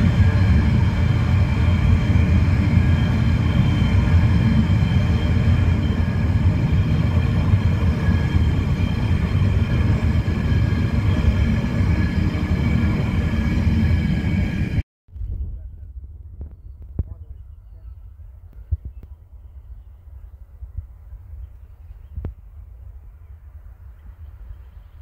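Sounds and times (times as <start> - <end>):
freight train rumbling on rails: 0.0 - 14.8.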